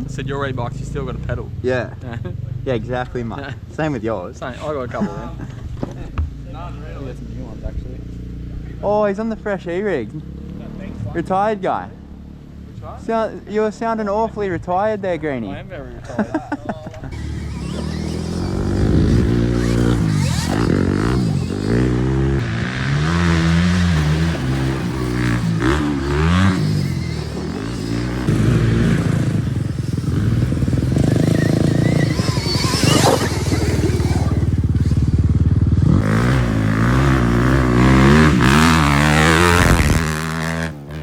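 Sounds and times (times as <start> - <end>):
dirt bike engine revving: 17.0 - 41.0
rising whine: 17.1 - 29.6.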